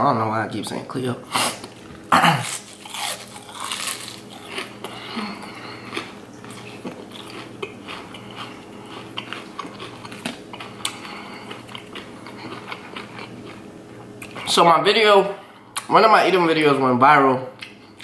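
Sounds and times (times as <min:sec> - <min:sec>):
crunchy chewing of fried food: 0:01.4 - 0:14.5.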